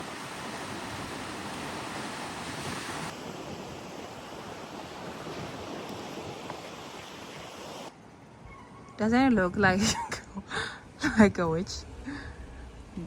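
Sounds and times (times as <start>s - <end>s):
sea surf washing: 0.0s - 7.9s.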